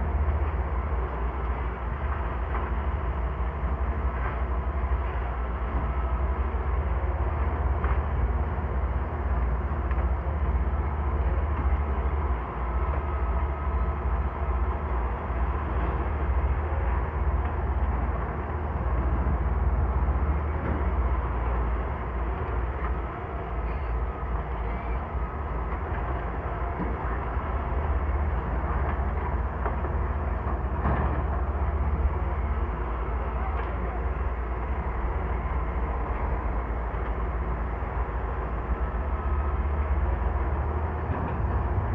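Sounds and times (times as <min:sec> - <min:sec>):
excavator diesel engine rumbling: 0:00.0 - 0:41.9.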